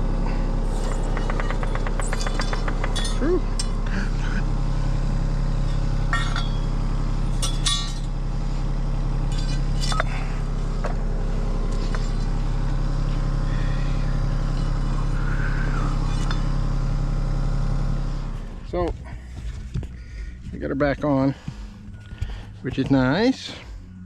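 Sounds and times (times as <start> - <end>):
diesel engine idling: 0.0 - 24.0
metal clinks and clanks: 0.7 - 3.9, 7.3 - 8.1.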